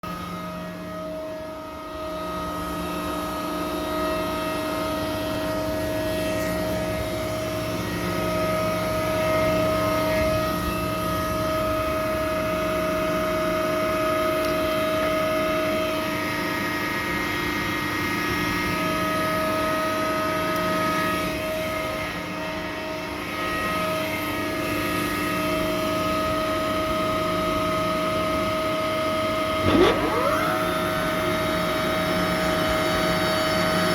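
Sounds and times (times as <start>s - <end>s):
chiller machinery drone: 29.5s - 31.5s
whining tones: 29.6s - 31.4s.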